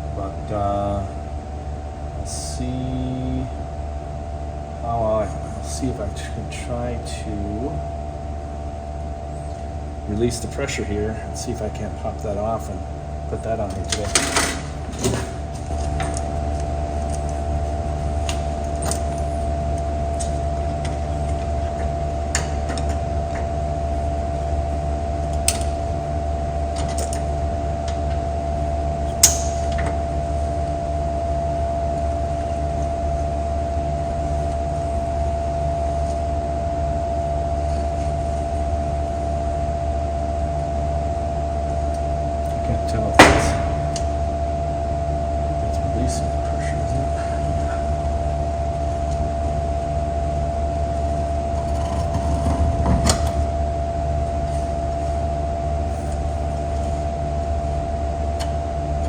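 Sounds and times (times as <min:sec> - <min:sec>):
low machine hum: 0:00.0 - 0:59.0
metallic clicks and clanks: 0:29.2 - 0:29.9.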